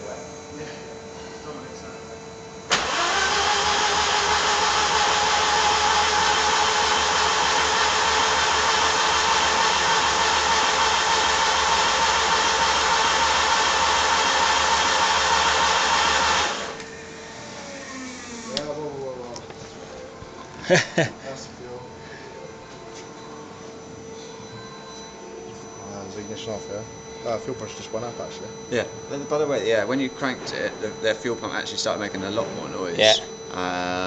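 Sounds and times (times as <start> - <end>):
starter motor cranking engine: 2.7 - 16.8
fuel pump humming: 2.7 - 17.7.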